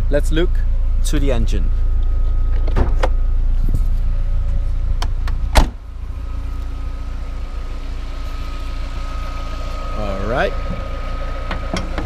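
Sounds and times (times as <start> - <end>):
car engine idling: 0.0 - 12.0
car door slamming shut: 2.6 - 3.2, 5.2 - 5.8.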